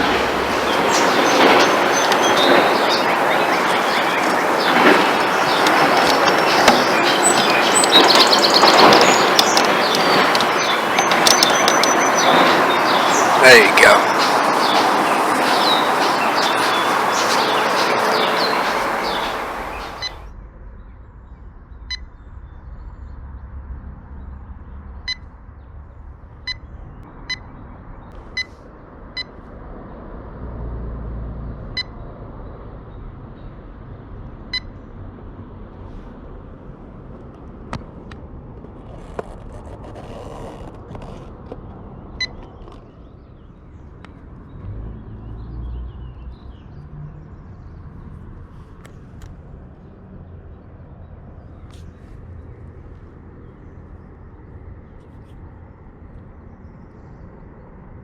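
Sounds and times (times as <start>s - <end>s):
river rushing: 0.0s - 20.2s.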